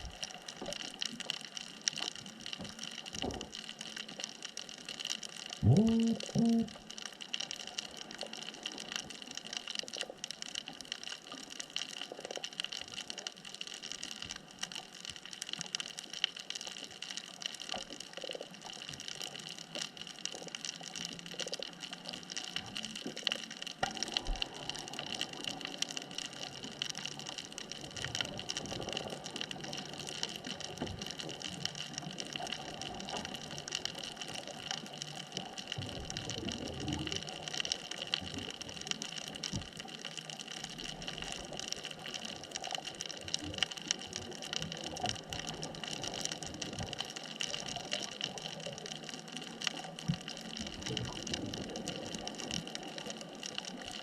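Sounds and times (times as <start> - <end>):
bubbly water sounds: 0.0 - 54.0
constant hiss: 0.0 - 54.0
crackle of tiny clicks: 0.0 - 54.0.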